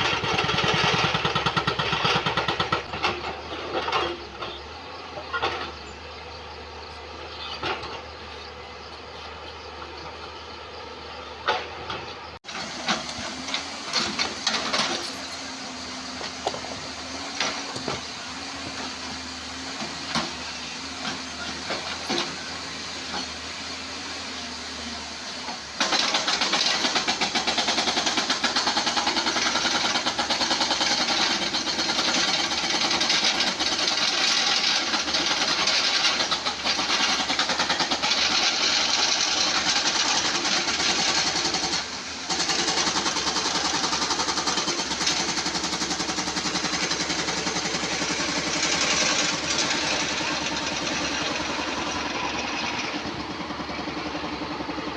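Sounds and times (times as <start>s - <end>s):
hydraulic breaker hammering stone: 0.0s - 4.1s, 25.8s - 54.1s
excavator engine running: 0.0s - 54.9s.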